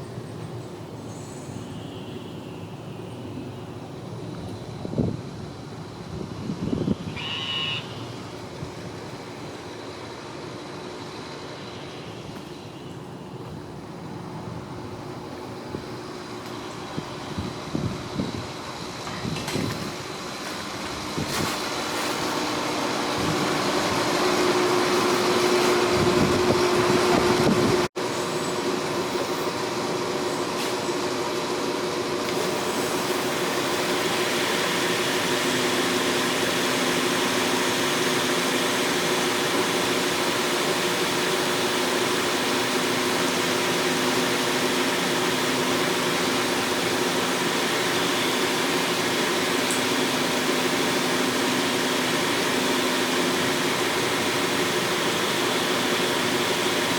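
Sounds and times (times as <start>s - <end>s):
shop machinery running: 0.0s - 56.9s.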